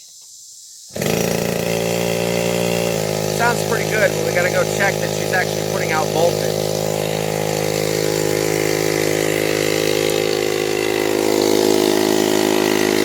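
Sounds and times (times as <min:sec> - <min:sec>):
small generator idling: 0:00.9 - 0:13.0.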